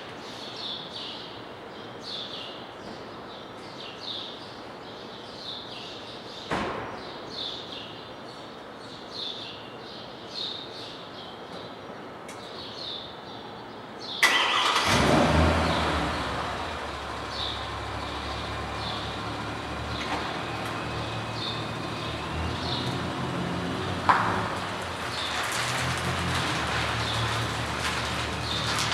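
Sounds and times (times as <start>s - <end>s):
car engine starting and idling: 14.2s - 28.9s.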